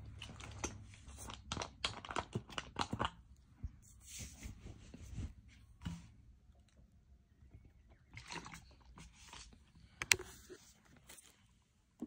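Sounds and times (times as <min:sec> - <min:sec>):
crunching and chewing snack: 0:00.0 - 0:03.4.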